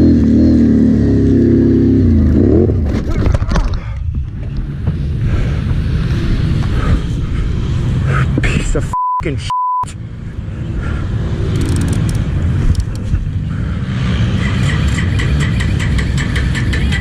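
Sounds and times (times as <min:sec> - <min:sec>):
atv engine rumbling: 0:00.0 - 0:08.9, 0:10.0 - 0:17.0
censor bleep: 0:08.9 - 0:09.9.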